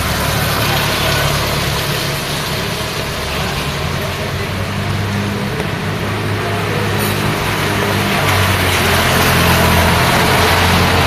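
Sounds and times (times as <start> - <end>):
rain hiss: 0.0 - 11.0
tyres on a wet road: 0.0 - 11.0
vehicle engines humming: 0.0 - 11.0.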